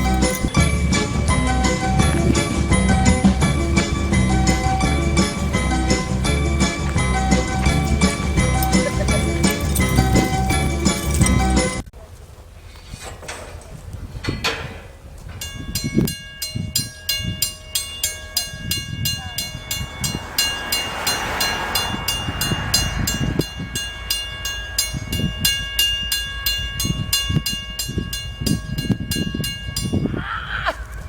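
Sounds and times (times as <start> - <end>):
train rushing past: 0.0 - 11.6, 18.5 - 27.5
train wheels clattering: 0.0 - 11.7
railroad crossing bell ringing: 0.0 - 11.8, 15.4 - 31.0.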